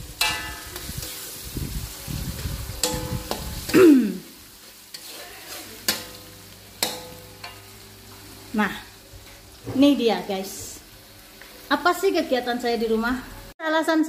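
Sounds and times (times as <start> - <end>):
metal spatula scraping wok: 0.0 - 3.8, 4.5 - 7.8
paste frying in oil: 0.0 - 13.5
spatula knocking against wok: 2.8 - 3.5, 6.8 - 7.6.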